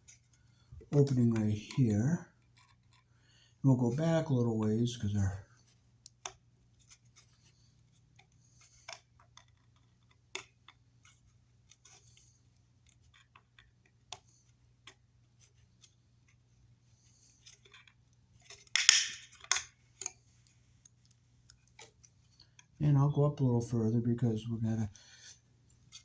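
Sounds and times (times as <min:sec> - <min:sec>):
sharp plastic snips and cracks: 0:18.5 - 0:20.2.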